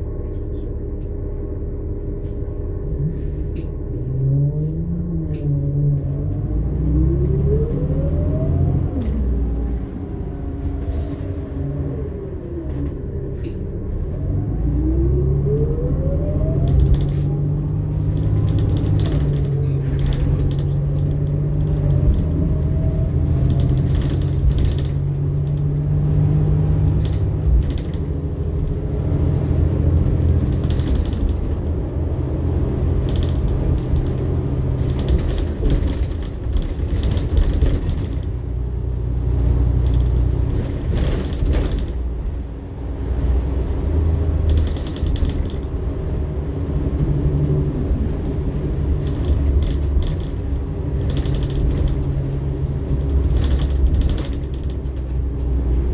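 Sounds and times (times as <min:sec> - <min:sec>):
bus engine running: 0:00.0 - 0:55.9
interior panels creaking and rattling: 0:16.5 - 0:55.9.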